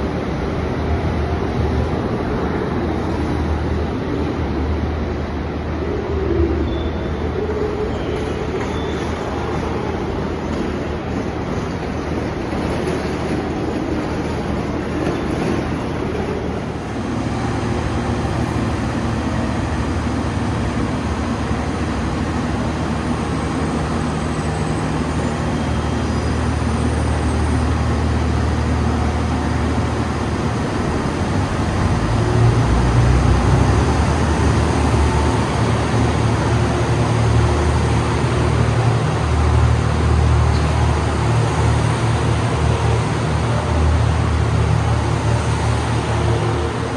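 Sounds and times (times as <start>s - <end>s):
train rumbling: 8.2s - 46.9s.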